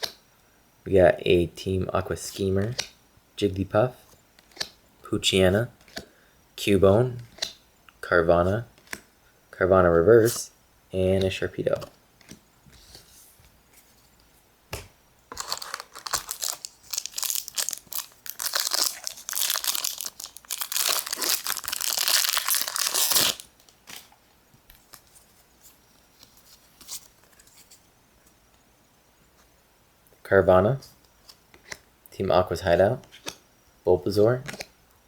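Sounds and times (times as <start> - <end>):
foil wrapper tearing and crinkling: 15.3 - 24.1.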